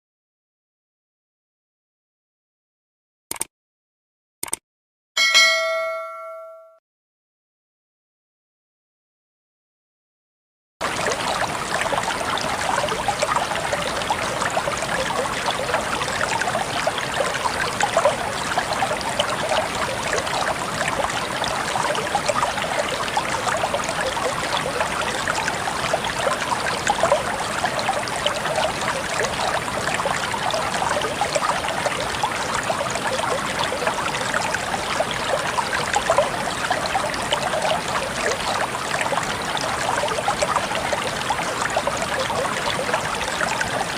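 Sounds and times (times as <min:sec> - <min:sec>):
stream babbling over rocks: 0:10.8 - 0:43.9.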